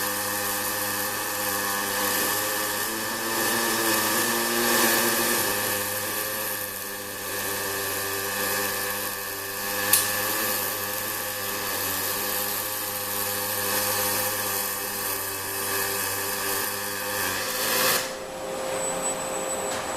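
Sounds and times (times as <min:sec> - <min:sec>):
welding hiss and buzz: 0:00.0 - 0:19.9
machine hum: 0:18.0 - 0:19.9.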